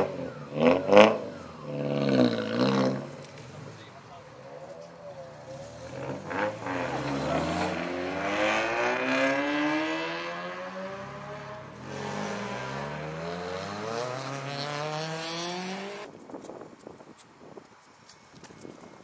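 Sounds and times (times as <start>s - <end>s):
car engine accelerating: 5.2s - 16.1s.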